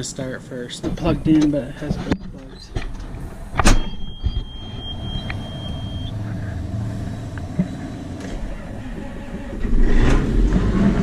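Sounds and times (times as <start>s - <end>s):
high-pitched warning tone: 3.7s - 9.2s.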